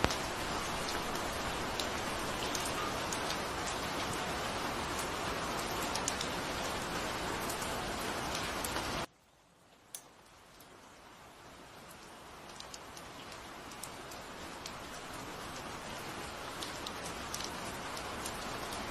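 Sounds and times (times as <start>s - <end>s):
raindrops ticking: 0.0s - 6.8s, 11.8s - 18.9s
steady rain hiss: 0.0s - 18.9s.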